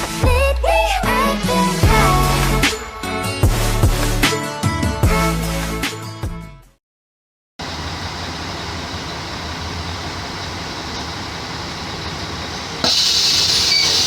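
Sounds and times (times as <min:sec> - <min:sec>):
bus diesel engine running: 0:07.6 - 0:14.0
loud hiss: 0:07.6 - 0:14.0.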